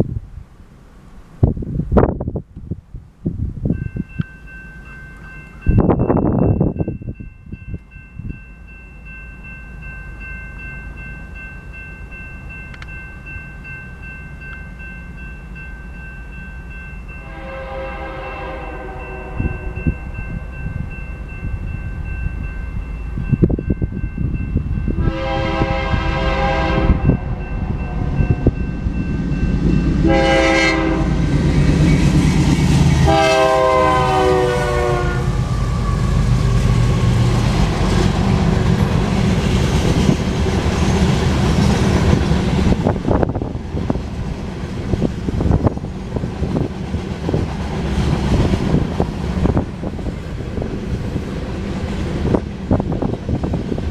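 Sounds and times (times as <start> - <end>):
diesel locomotives rumbling: 0.0 - 53.9
rail cars clattering on rails: 3.7 - 53.9
locomotive horn blasts: 17.2 - 20.0, 24.9 - 28.4, 30.0 - 31.2, 33.0 - 36.2.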